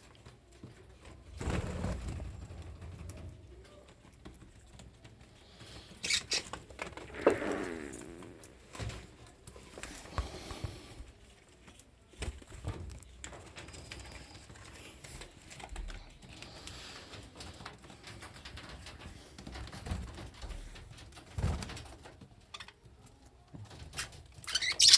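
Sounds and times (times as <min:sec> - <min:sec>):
cockatiel chirping and chattering: 0:06.0 - 0:06.5, 0:24.4 - 0:24.9.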